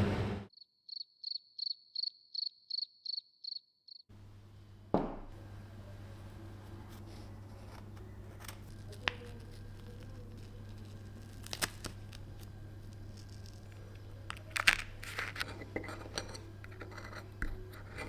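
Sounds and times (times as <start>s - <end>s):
steady low hum: 4.1s - 18.0s.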